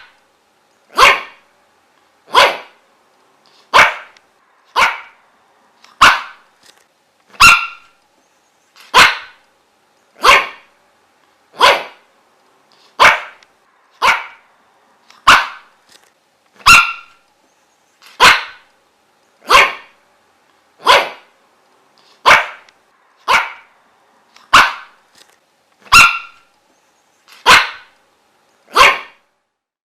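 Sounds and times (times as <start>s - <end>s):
dog barking: 0.9s - 1.4s, 2.3s - 2.8s, 3.7s - 5.2s, 6.0s - 6.4s, 7.4s - 8.0s, 8.9s - 9.4s, 10.2s - 10.7s, 11.6s - 12.1s, 13.0s - 13.4s, 14.0s - 14.5s, 15.2s - 15.7s, 16.6s - 17.2s, 18.2s - 18.7s, 19.4s - 20.0s, 20.8s - 21.3s, 22.2s - 23.7s, 24.5s - 25.0s, 25.9s - 26.5s, 27.4s - 28.0s, 28.7s - 29.2s.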